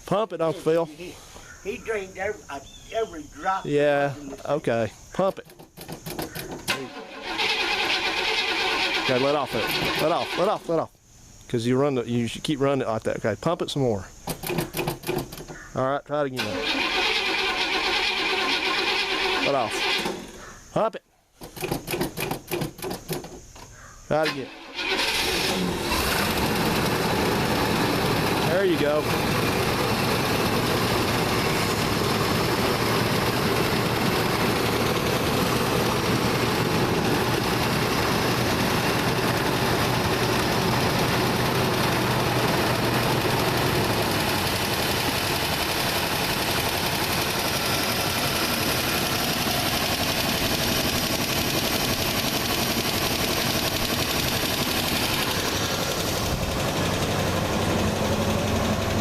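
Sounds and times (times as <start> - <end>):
car engine running: 25.5 - 59.0.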